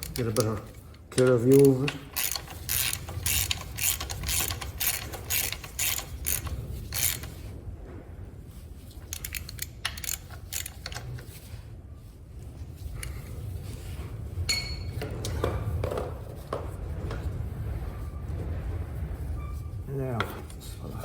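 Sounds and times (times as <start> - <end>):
ratchet wrench clicking: 0.0 - 7.4, 9.1 - 11.1.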